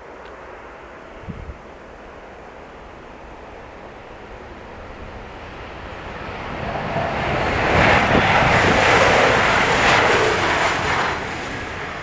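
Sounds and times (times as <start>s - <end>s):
passenger train rushing past: 0.0s - 12.0s.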